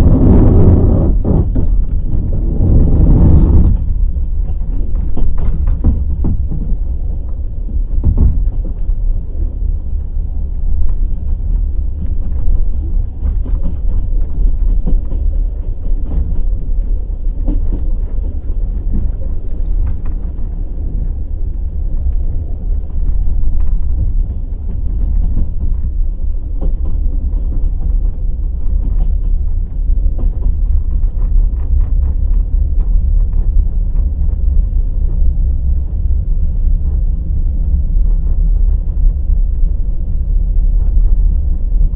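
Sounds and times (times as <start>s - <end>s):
clanks and clicks: 0.0s - 6.8s
train rumble: 0.0s - 41.9s.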